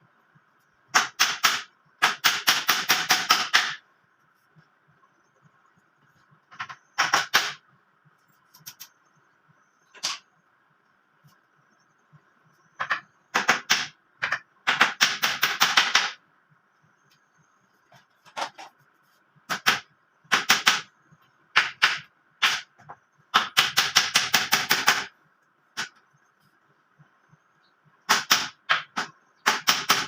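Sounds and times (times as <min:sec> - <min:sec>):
hammer driving nails into wood: 0:01.0 - 0:03.8, 0:07.0 - 0:07.6, 0:28.1 - 0:30.0.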